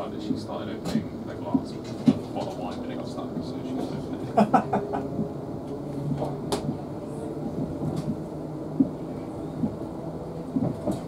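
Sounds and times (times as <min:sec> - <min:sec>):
train wheels rumbling on rails: 0:00.0 - 0:11.0
sharp clicks and knocks: 0:00.8 - 0:02.9, 0:07.6 - 0:08.2, 0:10.5 - 0:11.0.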